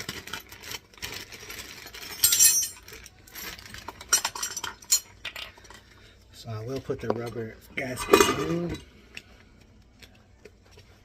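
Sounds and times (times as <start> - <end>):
metal parts clinking and rattling: 1.7 - 5.8.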